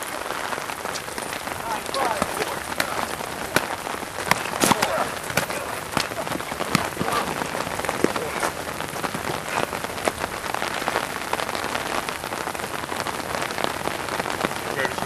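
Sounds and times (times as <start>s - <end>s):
rain hiss: 0.0s - 15.0s.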